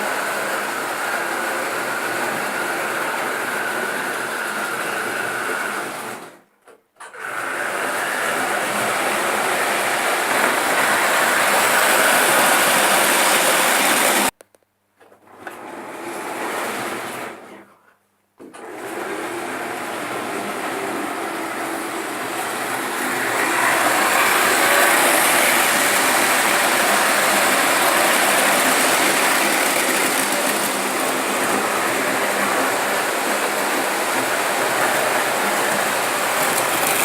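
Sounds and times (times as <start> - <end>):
wheels on track: 22.2 - 37.0
model train motor whirring: 23.0 - 37.0.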